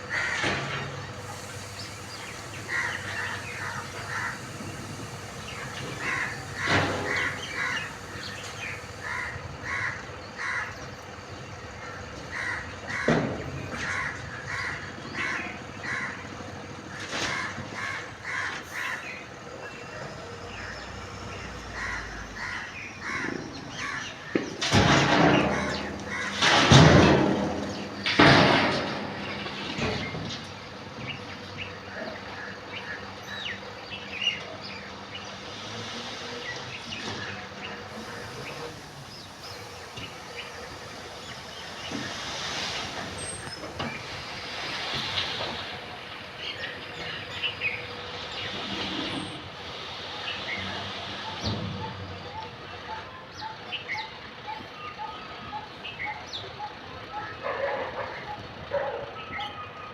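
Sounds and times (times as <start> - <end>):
crows cawing: 0.0 - 0.9, 2.6 - 5.0, 5.6 - 10.9, 11.8 - 19.2, 21.6 - 24.6, 25.3 - 26.6
loud rushes of noise: 35.4 - 52.9.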